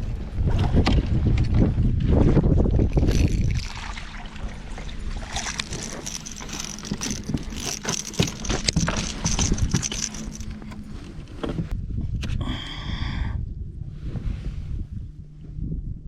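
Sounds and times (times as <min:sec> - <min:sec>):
wind rumbling on microphone: 0:00.0 - 0:16.0
knocks and clicks of gear: 0:05.4 - 0:12.4.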